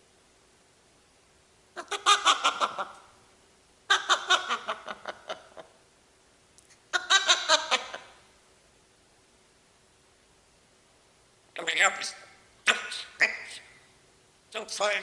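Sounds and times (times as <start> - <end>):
parrot mimicking laughter: 1.8 - 3.2, 3.9 - 5.8, 6.9 - 8.3.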